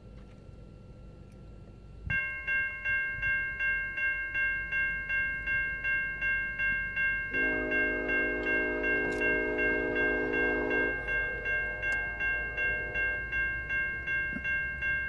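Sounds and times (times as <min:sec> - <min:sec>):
level crossing warning bell: 0:00.7 - 0:15.0
train horn blowing: 0:07.3 - 0:14.2.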